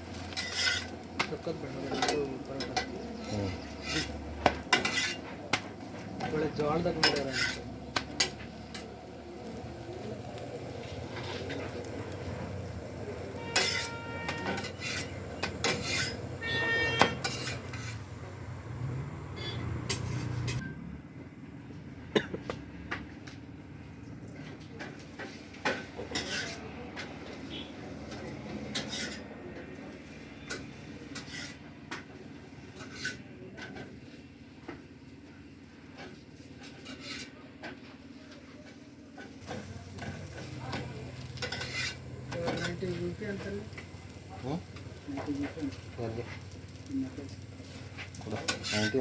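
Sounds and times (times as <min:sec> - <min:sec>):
metal dishes and utensils clinking: 0:00.2 - 0:09.6, 0:13.4 - 0:18.1, 0:19.4 - 0:20.7, 0:24.4 - 0:29.3, 0:39.2 - 0:43.0, 0:48.0 - 0:49.0.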